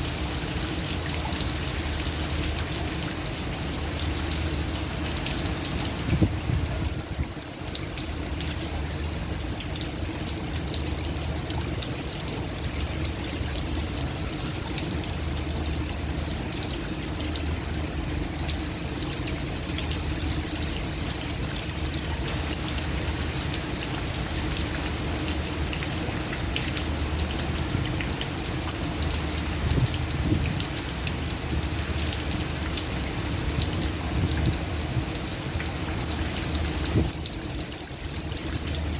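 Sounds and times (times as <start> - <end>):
heavy rain pouring: 0.0 - 38.9
strong wind rumble: 6.1 - 7.3, 29.7 - 30.6.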